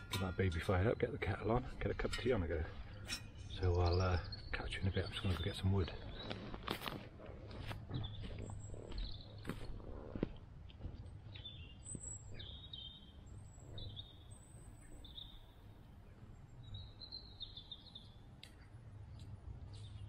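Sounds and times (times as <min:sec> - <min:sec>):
small bird chirping: 0:11.3 - 0:15.8.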